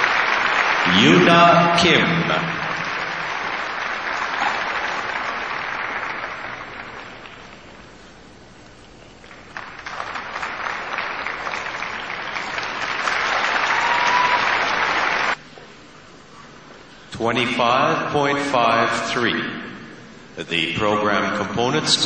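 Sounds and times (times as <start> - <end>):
crowd applauding: 0.0 - 7.9, 9.2 - 15.4.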